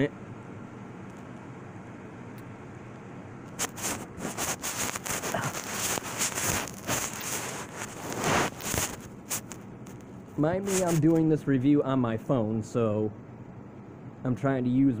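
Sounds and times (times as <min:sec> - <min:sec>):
microphone handling rustling: 0:03.5 - 0:11.2.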